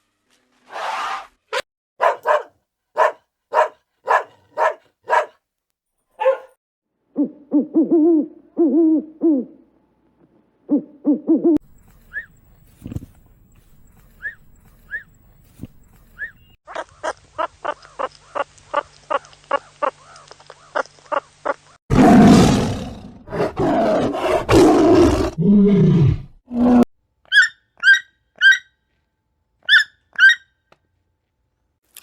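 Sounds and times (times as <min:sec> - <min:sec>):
big cat roaring: 0:21.9 - 0:26.8.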